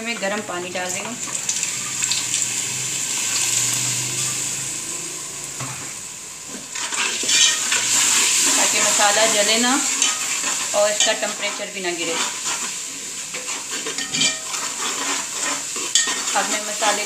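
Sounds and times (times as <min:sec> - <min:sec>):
food sizzling in a pot: 0:00.0 - 0:17.0
water poured into hot oil: 0:01.2 - 0:05.6, 0:06.7 - 0:10.5
ladle scraping a pot: 0:06.5 - 0:09.2, 0:09.8 - 0:17.0.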